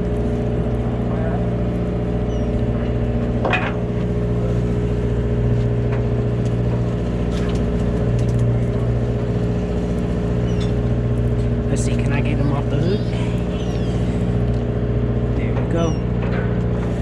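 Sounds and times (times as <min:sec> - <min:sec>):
boat engine humming: 0:00.0 - 0:17.0
short rising squeak: 0:10.4 - 0:10.8, 0:13.0 - 0:14.2.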